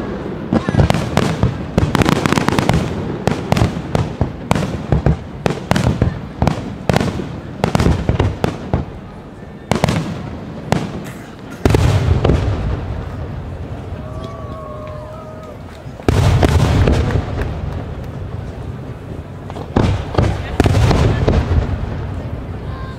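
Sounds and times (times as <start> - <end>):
fireworks cracking and banging: 0.0 - 22.9
heavy firework boom: 9.7 - 14.2, 16.1 - 22.7.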